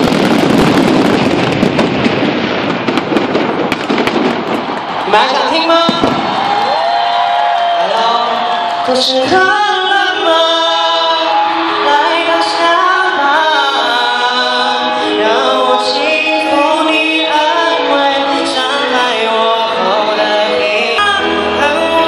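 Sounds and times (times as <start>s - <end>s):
music with singing voices: 7.8s - 22.0s.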